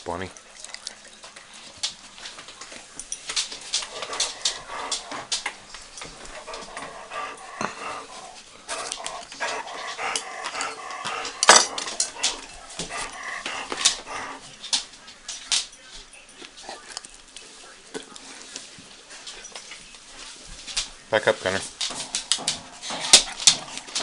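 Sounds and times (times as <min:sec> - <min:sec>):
dogs whining: 0:03.7 - 0:14.5.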